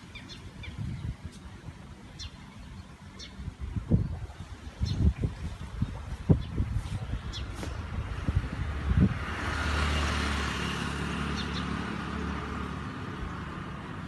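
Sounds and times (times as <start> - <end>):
car passing by: 6.9 - 14.0.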